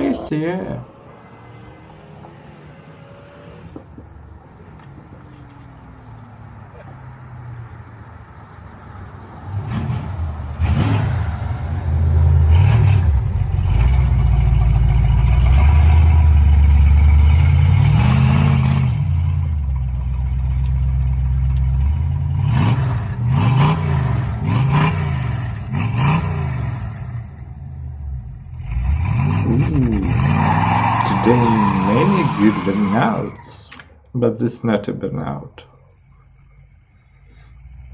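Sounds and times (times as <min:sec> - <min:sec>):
car engine revving: 0:09.4 - 0:35.0.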